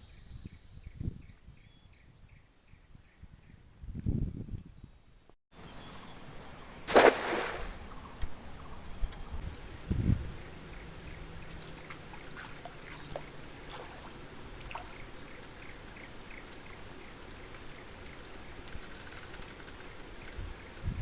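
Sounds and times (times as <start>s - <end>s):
insect chirps: 5.6s - 16.3s
river water running: 5.6s - 20.2s.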